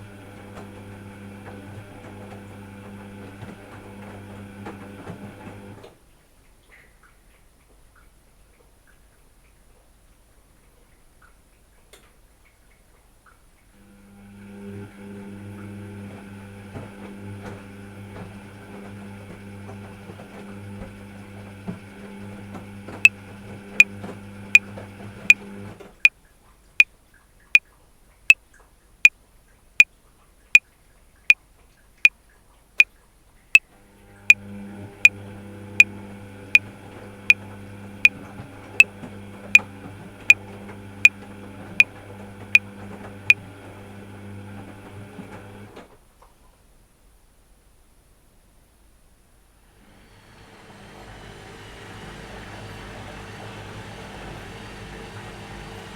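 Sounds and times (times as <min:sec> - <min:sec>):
washing machine hum: 0:00.0 - 0:06.0, 0:13.8 - 0:26.1, 0:33.7 - 0:46.0, 0:49.6 - 0:55.9.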